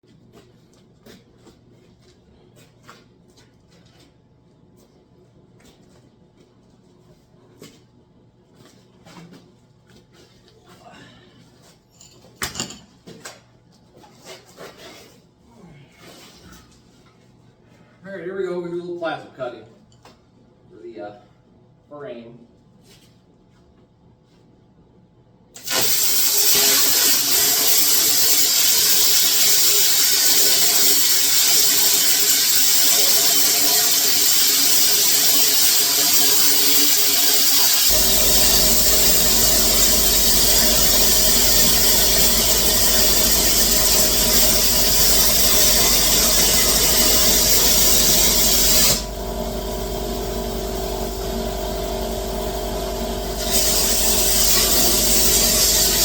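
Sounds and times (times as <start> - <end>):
plasma cutter hiss: 25.6 - 56.0
low steady hum: 37.9 - 56.0.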